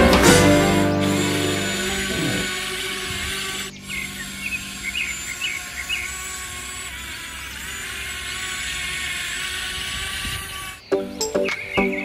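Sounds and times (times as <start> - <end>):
faint whine: 0.0 - 6.9
outdoor hum: 0.0 - 10.9.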